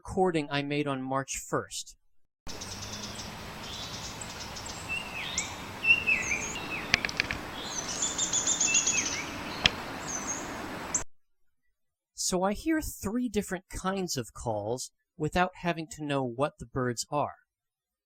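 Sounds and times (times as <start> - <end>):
birds calling: 2.5 - 11.0
steady background hiss: 2.5 - 11.0
woodpecker whinny: 2.5 - 11.0
sharp clicks: 6.9 - 7.5, 9.5 - 9.9.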